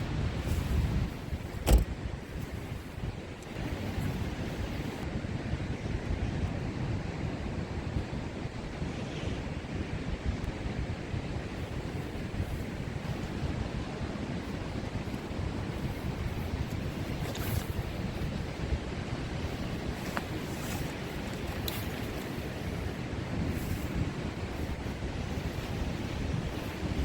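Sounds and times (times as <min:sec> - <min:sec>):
wind buffeting microphone: 0:00.0 - 0:27.0
ocean surf: 0:06.7 - 0:27.0.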